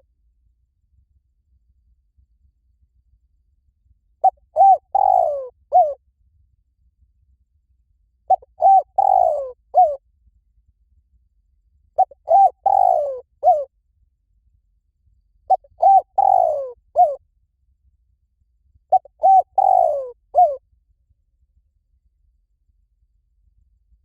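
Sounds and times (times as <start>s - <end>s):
dove cooing: 4.2s - 6.0s, 8.3s - 10.0s, 12.0s - 13.7s, 15.5s - 17.2s, 18.9s - 20.6s.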